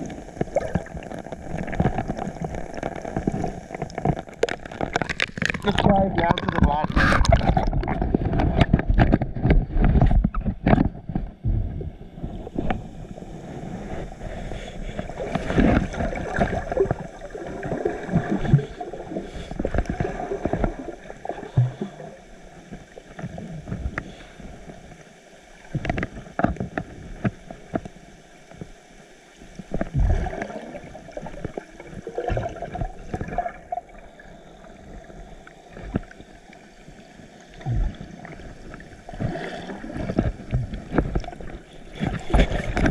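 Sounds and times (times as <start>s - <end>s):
knocks and gurgles: 0.0s - 12.9s, 14.9s - 22.1s, 25.7s - 27.9s, 29.7s - 34.1s, 37.5s - 42.9s
water splashing and sloshing: 0.0s - 42.9s.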